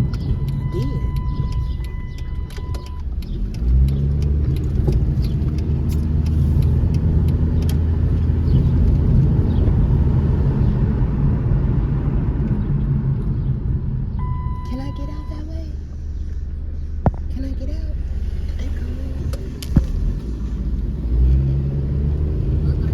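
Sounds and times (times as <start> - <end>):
warning chime tone: 0.0 - 3.0
car engine starting and running: 0.0 - 22.9.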